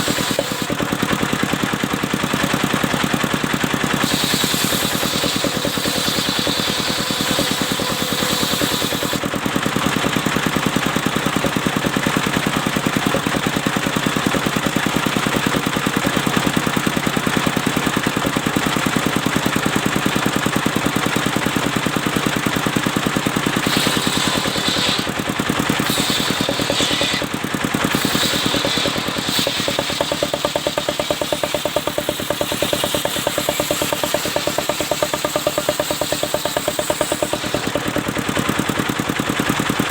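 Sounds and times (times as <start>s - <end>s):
saw blade hissing: 0.0s - 0.8s, 4.0s - 9.3s, 23.6s - 38.0s
sawmill engine running: 0.0s - 39.9s.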